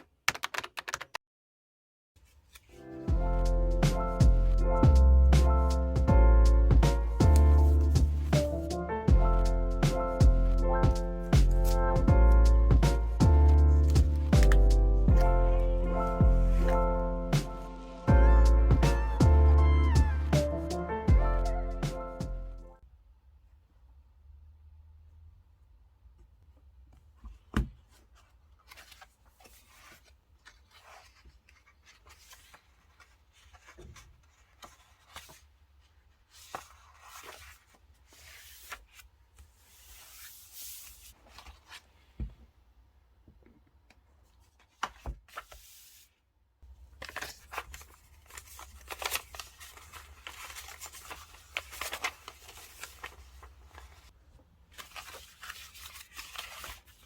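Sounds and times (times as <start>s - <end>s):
paper rustling: 2.2s - 3.1s, 6.9s - 8.8s, 11.3s - 17.9s, 27.2s - 42.4s, 44.2s - 57.0s.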